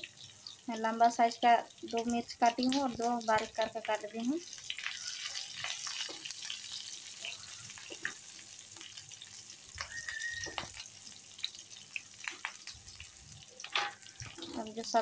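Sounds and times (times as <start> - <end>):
potatoes sizzling in oil: 0.0 - 15.0
high squeak: 9.8 - 10.6.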